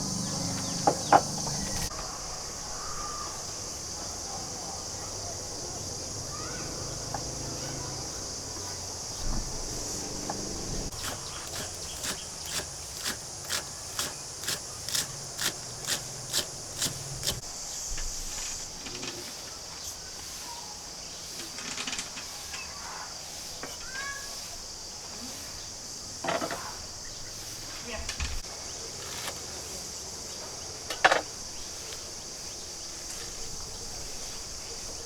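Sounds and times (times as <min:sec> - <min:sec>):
high insect buzz: 0:00.0 - 0:21.6.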